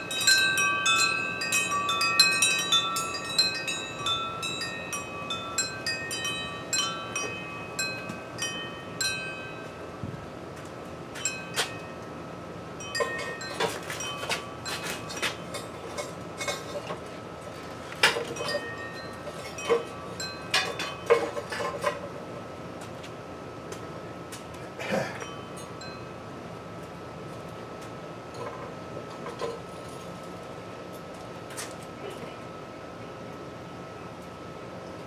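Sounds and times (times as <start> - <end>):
sharp metallic clinks: 0.0 - 9.8
wind chimes ringing: 0.0 - 10.0, 11.1 - 12.0, 12.8 - 16.0, 18.2 - 21.5, 25.2 - 26.2.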